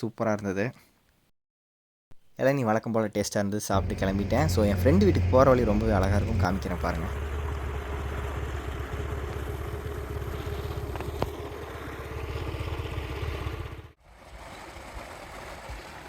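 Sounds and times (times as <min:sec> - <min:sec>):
scooter engine running: 0:03.8 - 0:14.0
outdoor ambience: 0:03.8 - 0:16.0.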